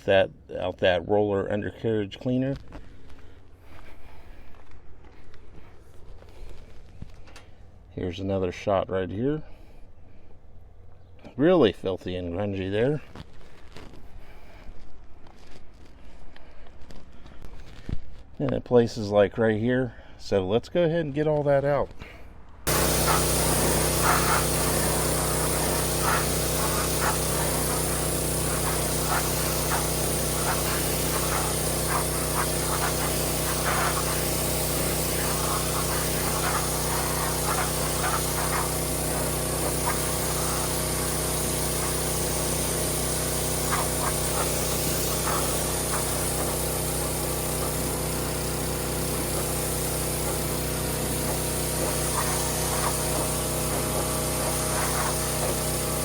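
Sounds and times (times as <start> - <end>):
pressure washer drone: 22.7 - 56.0
water spray hiss: 22.7 - 56.0.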